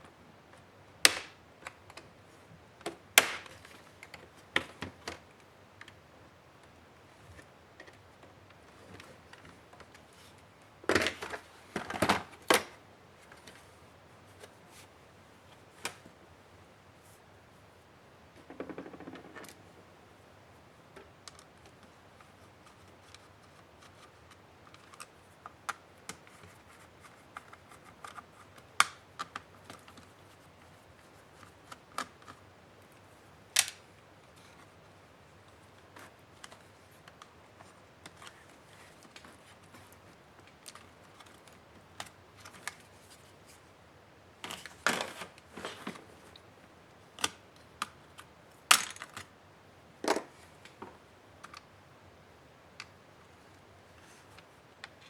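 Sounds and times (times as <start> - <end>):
plastic laptop parts clicking: 18.4 - 19.7, 21.2 - 30.1, 31.4 - 32.4, 33.6 - 33.8, 36.0 - 42.8, 47.2 - 49.3
clatter of small parts: 18.4 - 19.8, 48.7 - 49.3.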